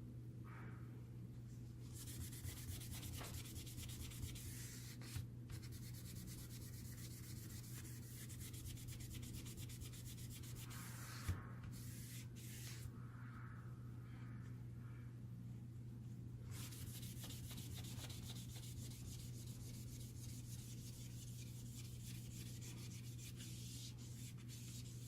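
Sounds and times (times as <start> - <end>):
steady low hum: 0.0 - 25.0
scratchy rubbing by hand: 1.9 - 12.9, 16.5 - 25.0.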